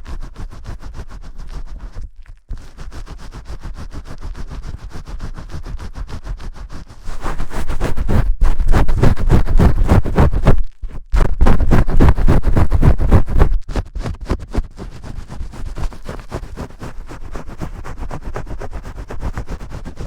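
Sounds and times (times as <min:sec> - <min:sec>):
shampoo scrubbing on hair: 0:00.0 - 0:10.6.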